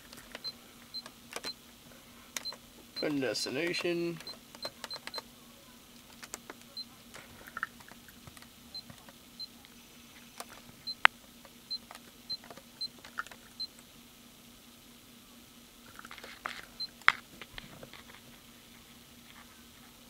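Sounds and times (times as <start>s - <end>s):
sharp clicks: 0.0s - 1.6s, 2.4s - 5.2s.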